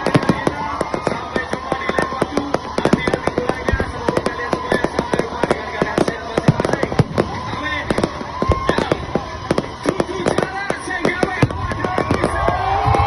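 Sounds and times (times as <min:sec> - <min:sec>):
fireworks banging and crackling: 0:00.0 - 0:13.0.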